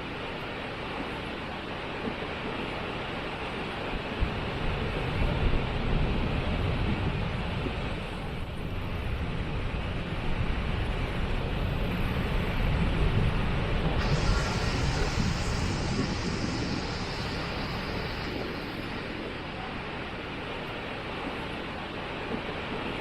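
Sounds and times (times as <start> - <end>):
bright water hiss: 14.0 - 22.4.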